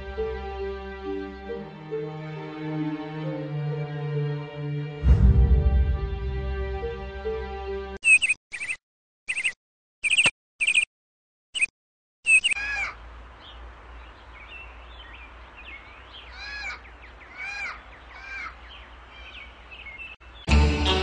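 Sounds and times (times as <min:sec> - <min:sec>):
birds chirping: 0:08.0 - 0:10.9, 0:11.6 - 0:20.6
harsh descending bird calls: 0:12.3 - 0:13.6, 0:15.0 - 0:20.1.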